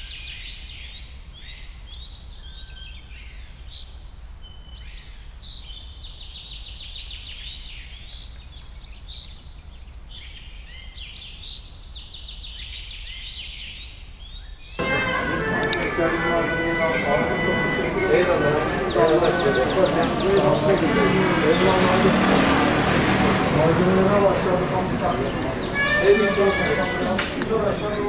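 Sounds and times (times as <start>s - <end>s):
small birds chirping and trilling: 15.5s - 28.0s.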